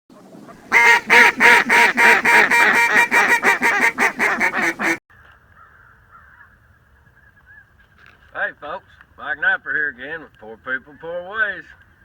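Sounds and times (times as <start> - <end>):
duck quacking: 0.6 - 5.0.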